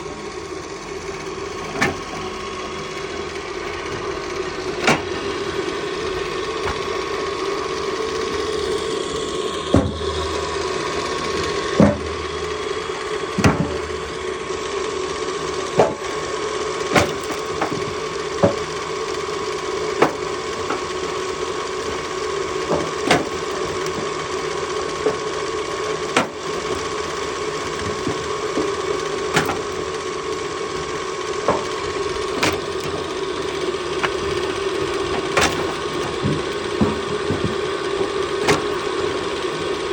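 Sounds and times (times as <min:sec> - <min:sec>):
firewood splitter motor humming: 0:00.0 - 0:39.9
heavy thuds: 0:09.7 - 0:10.5
wood cracking: 0:17.0 - 0:18.7, 0:34.0 - 0:38.8.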